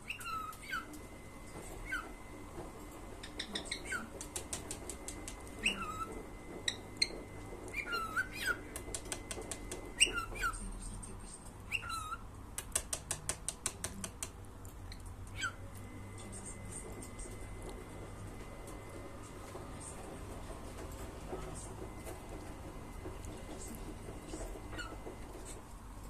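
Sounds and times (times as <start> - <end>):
cockatiel whistled chirps: 6.7 - 8.6, 9.9 - 10.6.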